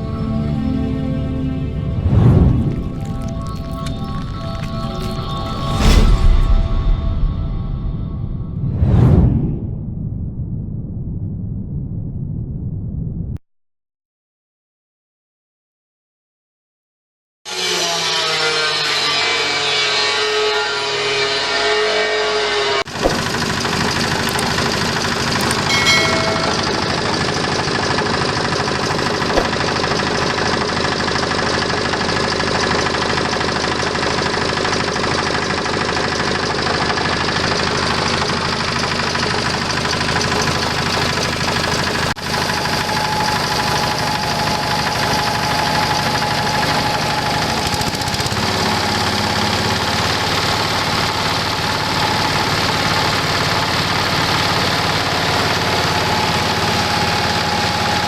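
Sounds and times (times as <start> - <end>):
grinding machine running: 0.0 - 8.3, 22.9 - 58.0.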